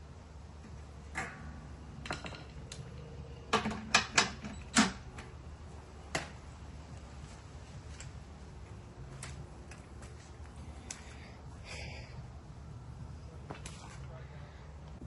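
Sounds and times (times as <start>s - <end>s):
tools clicking and knocking: 2.0s - 5.2s.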